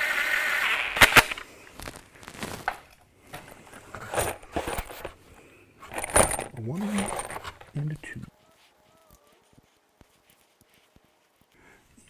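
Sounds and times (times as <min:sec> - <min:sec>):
metal tools clinking on metal: 0:03.3 - 0:08.0.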